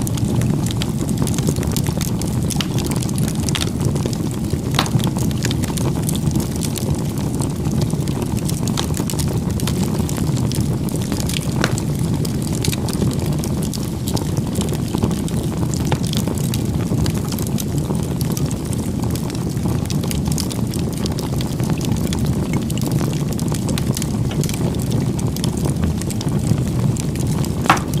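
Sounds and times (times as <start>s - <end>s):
fire crackling and popping: 0.0s - 28.0s
fire flames rumbling: 0.0s - 28.0s.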